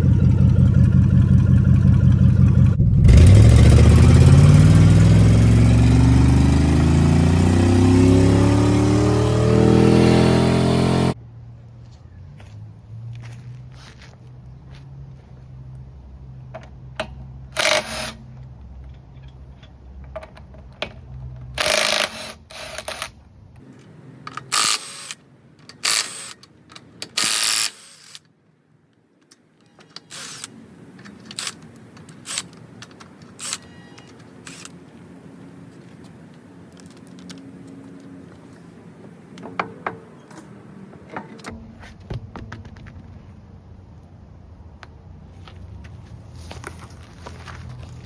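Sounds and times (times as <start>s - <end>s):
low hum: 0.0s - 10.0s
tools clanking on metal parts: 23.8s - 28.2s, 29.3s - 34.8s, 36.8s - 42.0s.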